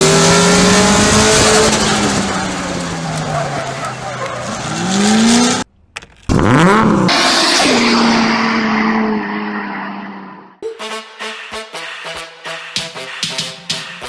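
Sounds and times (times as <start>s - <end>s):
car engine revving: 0.0s - 5.7s, 6.3s - 10.6s
tyres squealing: 1.7s - 5.6s.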